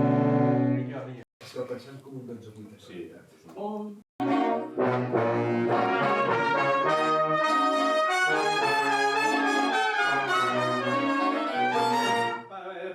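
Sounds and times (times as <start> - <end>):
brass section playing chords: 0.0 - 0.9, 4.2 - 12.5.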